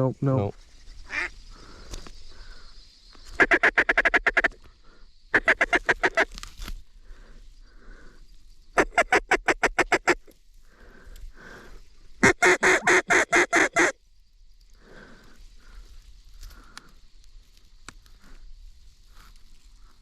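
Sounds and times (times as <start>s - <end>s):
mallard quacking: 3.4s - 4.6s, 5.4s - 6.2s, 12.2s - 13.9s.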